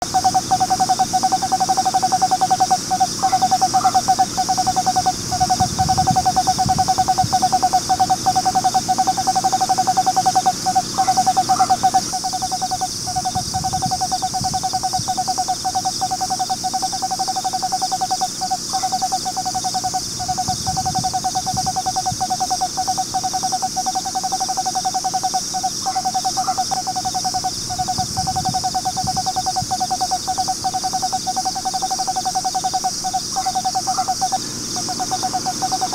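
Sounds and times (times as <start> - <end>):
steady high hiss: 0.0 - 35.9
owl trilling: 3.2 - 4.3, 10.7 - 12.5, 33.3 - 35.9.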